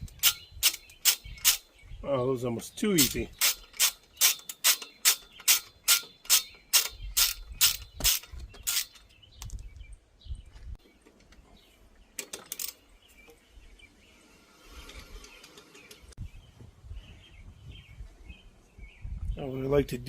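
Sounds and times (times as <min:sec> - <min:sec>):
ratchet wrench clicking: 0:00.0 - 0:01.6, 0:03.0 - 0:09.0.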